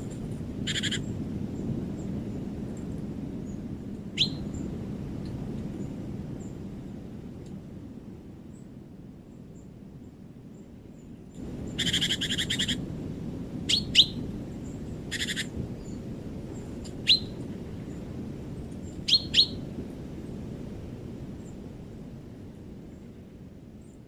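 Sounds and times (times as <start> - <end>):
low rushing noise: 11.4 - 23.4
buzzy bird trills: 17.1 - 17.4.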